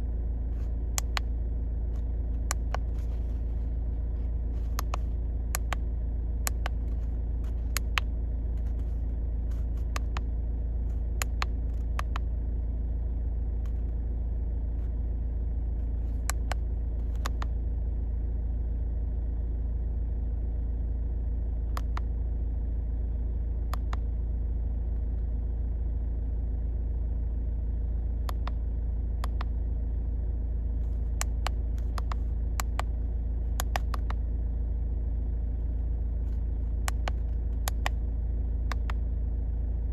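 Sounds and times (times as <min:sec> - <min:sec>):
car engine idling: 0:00.0 - 0:39.9
sharp clicks: 0:01.0 - 0:01.3, 0:04.7 - 0:05.9, 0:06.5 - 0:07.0, 0:09.7 - 0:10.3, 0:11.2 - 0:12.3, 0:17.2 - 0:17.6, 0:29.2 - 0:29.5, 0:31.1 - 0:32.9, 0:33.6 - 0:34.2, 0:36.8 - 0:38.0, 0:38.7 - 0:39.0.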